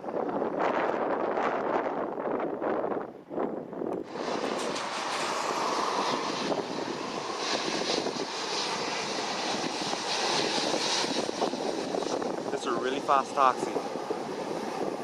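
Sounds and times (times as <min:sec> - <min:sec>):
jet engines running: 0:04.0 - 0:15.0.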